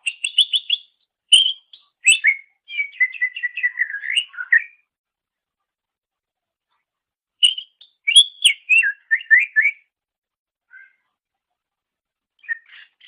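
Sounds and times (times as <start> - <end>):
bird singing whistled notes: 0.0 - 4.8, 7.4 - 9.9, 10.7 - 11.0, 12.4 - 13.0.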